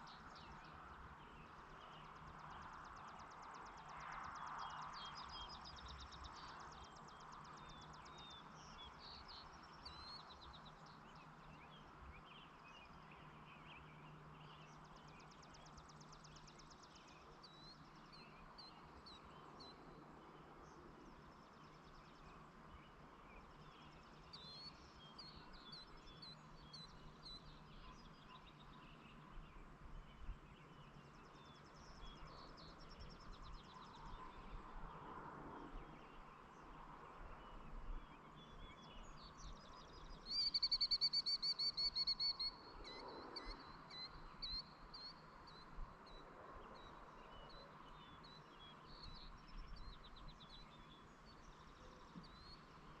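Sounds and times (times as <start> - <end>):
bird chirps and trills: 37.4 - 46.2.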